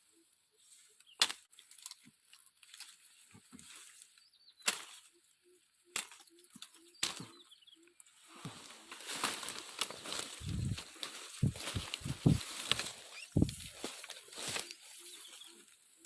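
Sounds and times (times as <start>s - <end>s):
brush rustling: 0.6s - 5.3s, 8.0s - 16.0s
sharp wood cracks: 1.2s - 3.0s, 4.6s - 5.1s, 5.9s - 7.3s, 9.1s - 14.7s.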